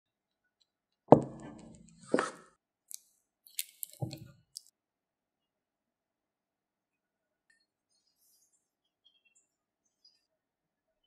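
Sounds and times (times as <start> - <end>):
soft thud: 1.1 - 2.4.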